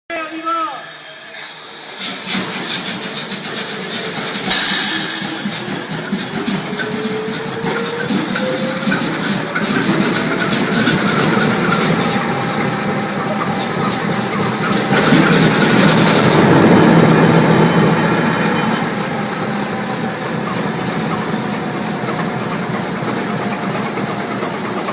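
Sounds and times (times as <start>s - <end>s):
loud hiss burst: 0.6s - 5.6s
diesel engine clattering: 1.8s - 24.9s.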